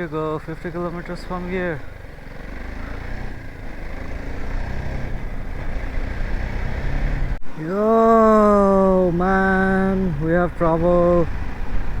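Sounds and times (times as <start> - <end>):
motorcycle engine at speed: 0.0 - 7.4, 8.5 - 12.0
wind rush: 8.8 - 12.0.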